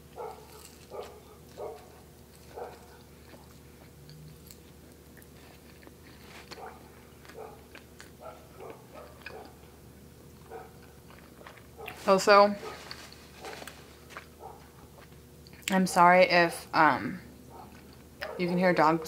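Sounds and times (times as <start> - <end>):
biting and chewing pastry: 0.0 - 15.7
dogs barking: 0.1 - 3.4, 6.5 - 9.8, 10.4 - 15.0, 17.5 - 19.0.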